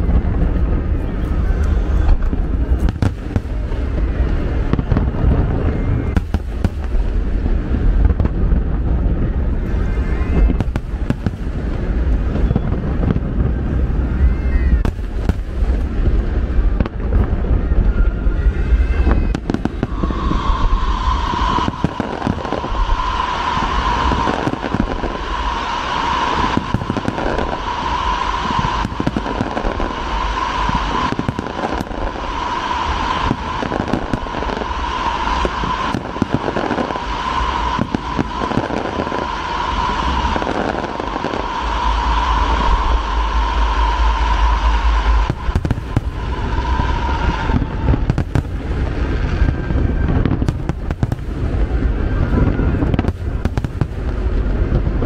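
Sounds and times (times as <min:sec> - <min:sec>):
fireworks bangs and crackling: 0:00.0 - 0:55.0
heavy low booms: 0:00.0 - 0:55.0
steady high tone: 0:17.8 - 0:50.0.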